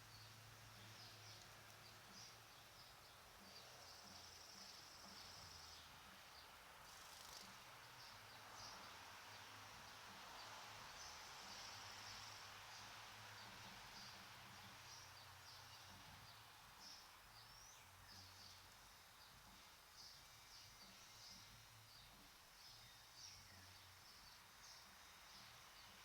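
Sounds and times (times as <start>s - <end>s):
small birds chirping: 0.0s - 26.0s
steady background hiss: 0.0s - 26.0s.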